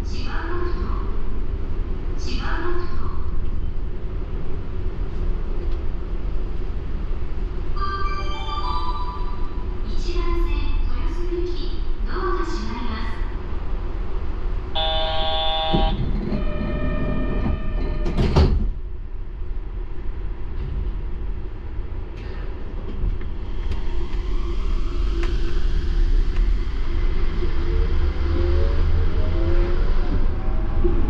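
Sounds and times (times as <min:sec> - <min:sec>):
train rumble: 0:00.0 - 0:31.0
train door chime: 0:07.8 - 0:09.6, 0:14.8 - 0:18.4.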